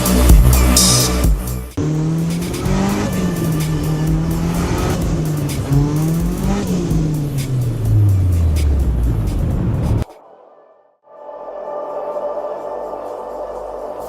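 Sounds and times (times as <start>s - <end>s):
turbocharged car engine revving: 0.0s - 10.0s.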